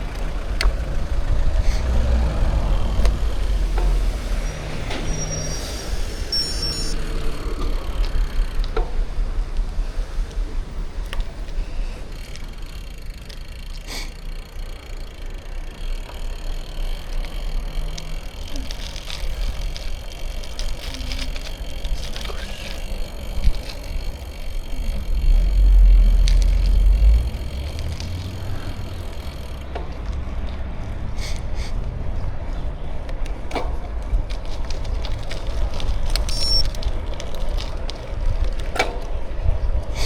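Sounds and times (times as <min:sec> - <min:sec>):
bicycle tyre noise: 0:00.0 - 0:40.0
bike clicks and rattles: 0:00.0 - 0:40.0
wind rumbling on microphone: 0:18.2 - 0:40.0.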